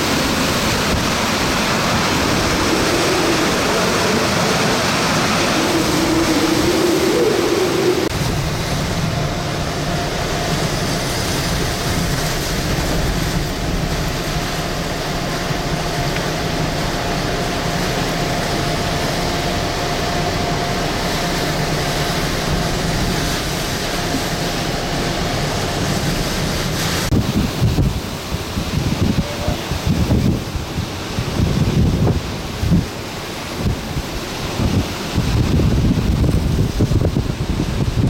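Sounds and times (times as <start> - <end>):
strong wind buffeting microphone: 0.0 - 38.0
faint wind whistle: 2.1 - 8.2.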